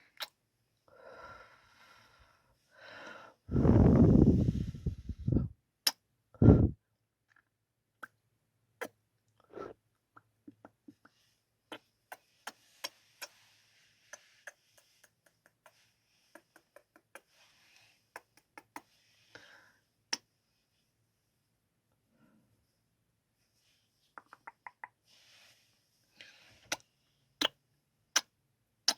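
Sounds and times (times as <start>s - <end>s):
soft breaths: 0.9s - 5.5s, 10.6s - 21.0s, 25.0s - 27.4s
wet lip smacks: 24.2s - 25.0s.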